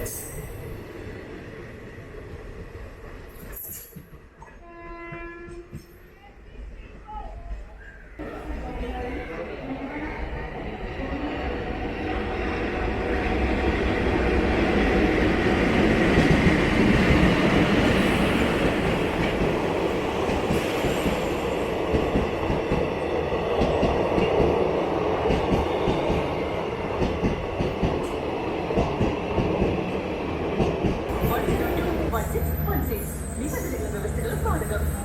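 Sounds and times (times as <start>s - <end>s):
train rumbling past: 0.0s - 35.0s.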